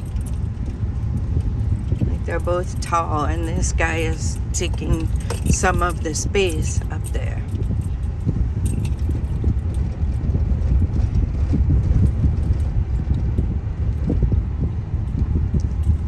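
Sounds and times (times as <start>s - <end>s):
cabin clicks and rattles: 0.0s - 9.9s
road and engine rumble: 0.0s - 16.0s.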